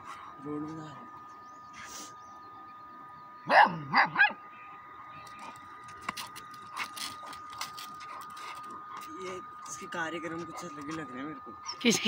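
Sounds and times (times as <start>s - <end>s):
dog barking: 3.5s - 4.4s.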